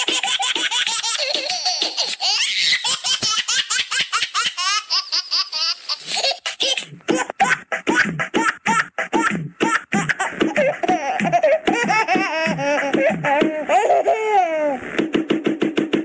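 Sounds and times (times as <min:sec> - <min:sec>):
baby laughing: 0:00.0 - 0:14.9.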